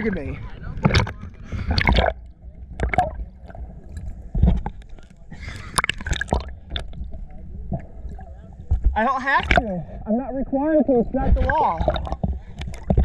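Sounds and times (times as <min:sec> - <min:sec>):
seawater sloshing and gurgling: 0:00.0 - 0:10.2, 0:11.0 - 0:13.0
water splashes and drips: 0:00.8 - 0:05.1.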